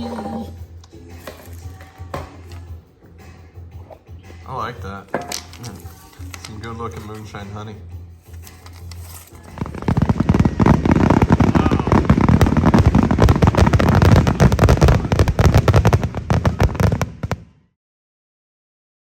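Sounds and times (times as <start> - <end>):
firecrackers popping: 0.8 - 2.8, 5.0 - 17.6.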